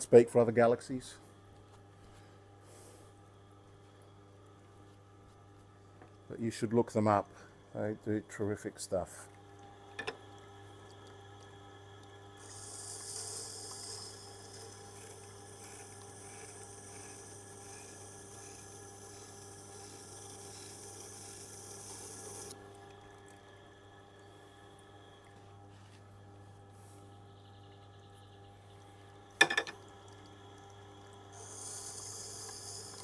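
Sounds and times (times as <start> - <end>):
grinder motor humming: 11.4 - 22.6, 27.4 - 33.0.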